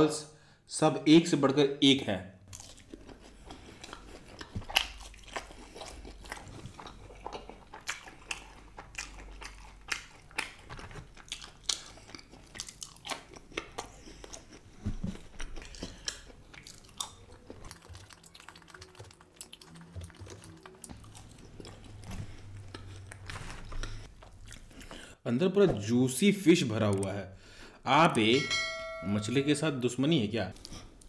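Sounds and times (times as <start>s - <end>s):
crunchy chewing: 2.5s - 25.2s.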